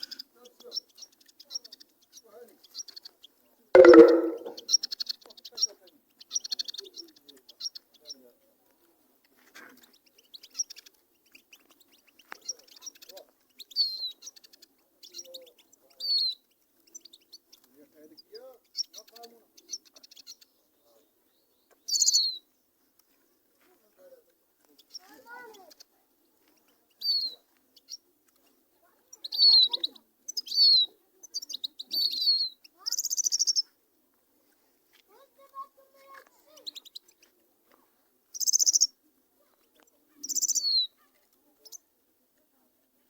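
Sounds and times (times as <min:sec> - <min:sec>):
sharp click: 0:03.8 - 0:04.6
finches chirping and twittering: 0:38.3 - 0:38.9, 0:40.2 - 0:40.9.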